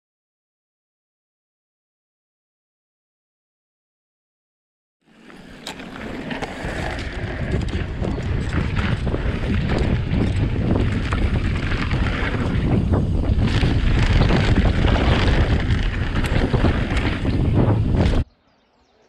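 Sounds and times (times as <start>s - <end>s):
bike clicks and rattles: 5.1s - 18.2s
wind buffeting microphone: 5.6s - 18.3s.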